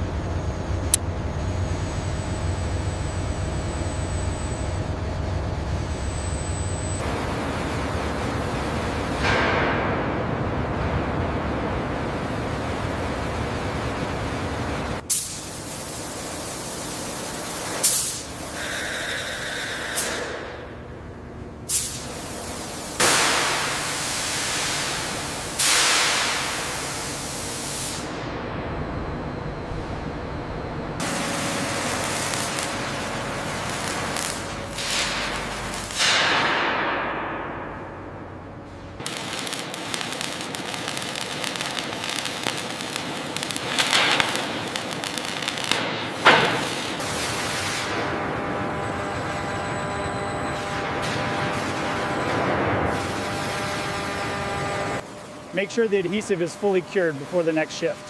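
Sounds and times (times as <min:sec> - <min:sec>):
loud hissing bursts: 0:21.7 - 0:28.1, 0:39.0 - 0:47.0
dense crackling with sharp clicks: 0:31.8 - 0:36.6, 0:39.0 - 0:47.0.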